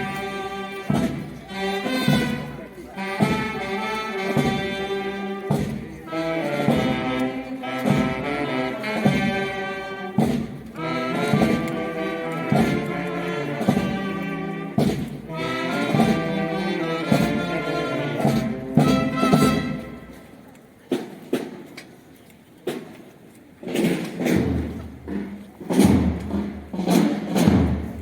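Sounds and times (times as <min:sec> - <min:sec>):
drum strokes: 0:00.0 - 0:20.2, 0:23.6 - 0:28.0
brass instruments playing chords: 0:06.1 - 0:20.1.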